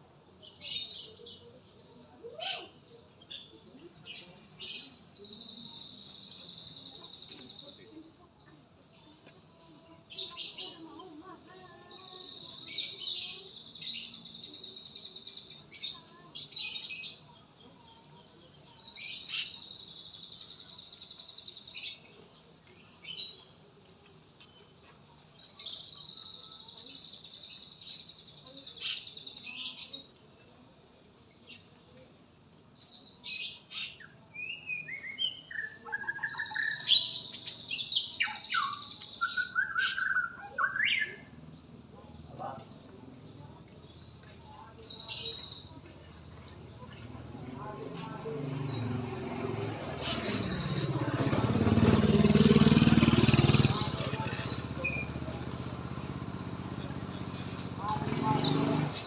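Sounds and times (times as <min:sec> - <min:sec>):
songbirds buzzy trilling: 0:10.0 - 0:17.3, 0:35.2 - 0:41.3, 0:46.7 - 0:59.0
bird chirps: 0:32.8 - 0:41.4.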